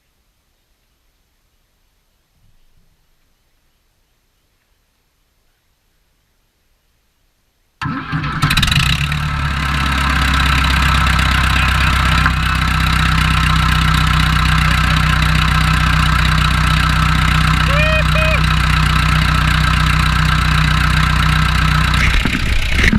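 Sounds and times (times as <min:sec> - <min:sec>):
backhoe engine starting and idling: 0:07.8 - 0:22.9.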